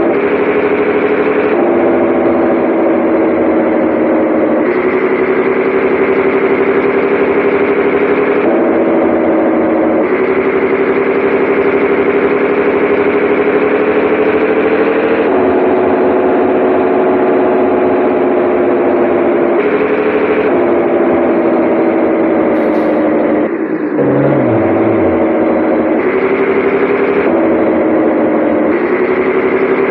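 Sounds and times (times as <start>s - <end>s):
truck diesel engine running: 21.1s - 28.5s.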